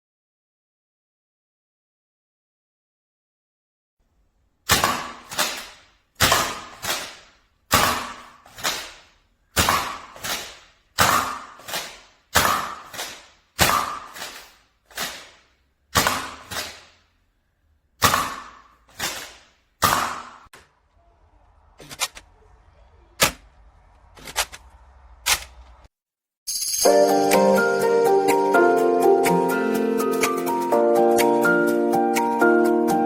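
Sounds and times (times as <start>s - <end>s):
toy bow snapping: 4.7s - 15.4s, 18.0s - 20.4s.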